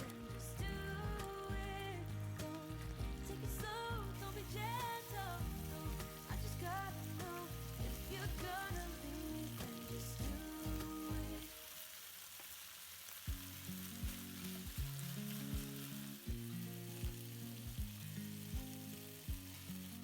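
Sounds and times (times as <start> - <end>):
background music with melody: 0.0 - 12.0
food sizzling in a pan: 0.0 - 20.0.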